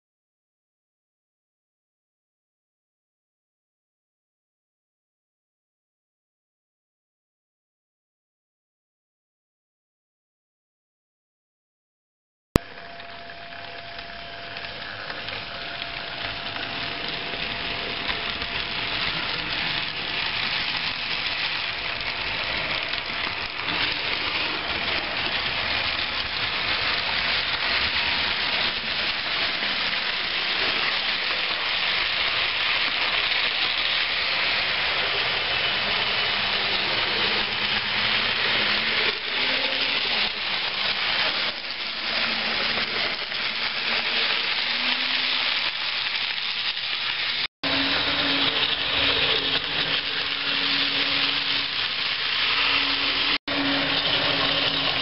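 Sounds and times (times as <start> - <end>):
model train rolling on track: 12.6 - 55.0.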